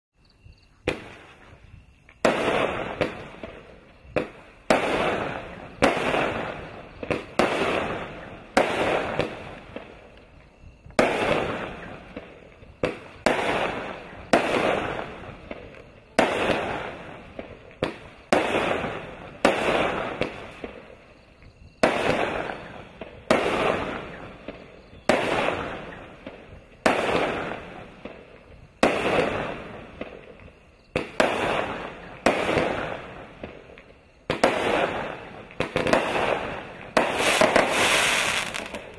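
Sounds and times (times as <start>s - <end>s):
fireworks cake bangs: 10.9s - 20.8s, 30.9s - 38.9s.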